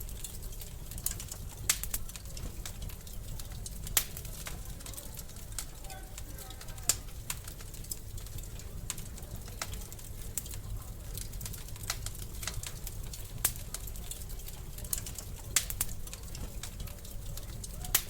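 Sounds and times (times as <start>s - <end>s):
fireplace fire crackling: 0.0s - 18.0s.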